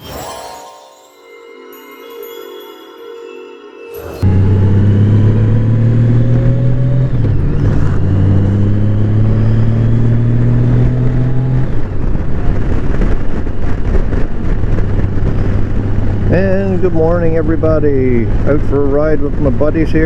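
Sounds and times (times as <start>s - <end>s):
motorcycle engine running: 4.2s - 17.8s
wind noise: 4.2s - 20.0s.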